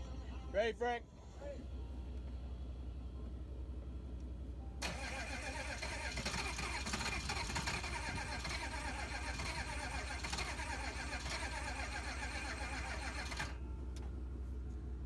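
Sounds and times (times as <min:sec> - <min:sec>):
starter motor cranking engine: 0:04.8 - 0:13.6.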